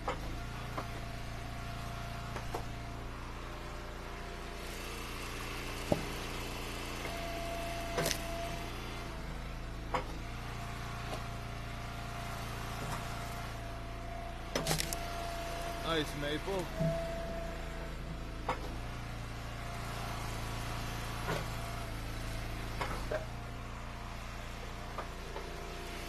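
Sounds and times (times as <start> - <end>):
log splitter engine running: 0.0 - 26.0.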